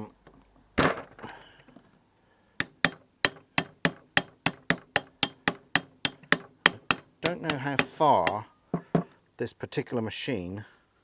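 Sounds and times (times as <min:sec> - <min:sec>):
hammer tapping on metal: 0:02.6 - 0:09.1.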